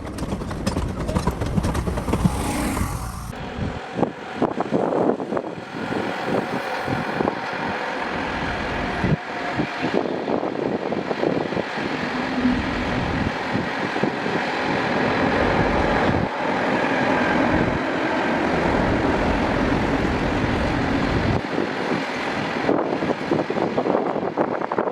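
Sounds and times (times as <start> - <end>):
wheels clattering on track: 0.0 - 3.4
train rumbling past: 0.0 - 23.5.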